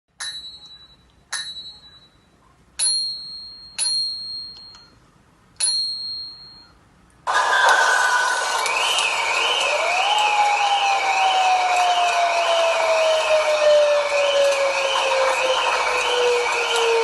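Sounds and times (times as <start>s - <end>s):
bell-like dings: 0.2s - 5.0s, 5.6s - 6.8s
loud hissing noise: 7.3s - 9.9s.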